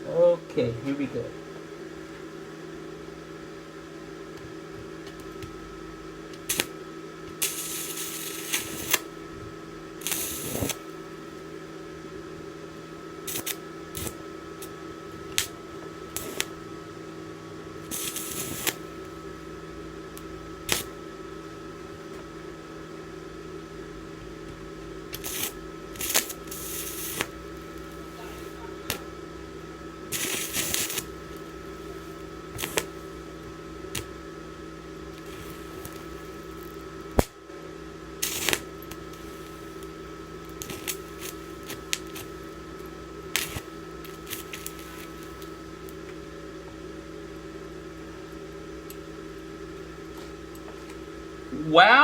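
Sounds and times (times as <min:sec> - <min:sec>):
welding machine hum: 0:01.8 - 0:52.0
electrode clicking on metal: 0:06.3 - 0:06.7, 0:13.3 - 0:15.6, 0:17.9 - 0:18.8, 0:20.1 - 0:20.9, 0:25.1 - 0:27.9, 0:32.6 - 0:32.9, 0:38.2 - 0:39.2
welding arc crackling: 0:06.3 - 0:11.6, 0:12.7 - 0:16.8, 0:17.7 - 0:19.4, 0:20.0 - 0:22.0, 0:25.0 - 0:34.2, 0:34.8 - 0:37.4, 0:38.2 - 0:46.2.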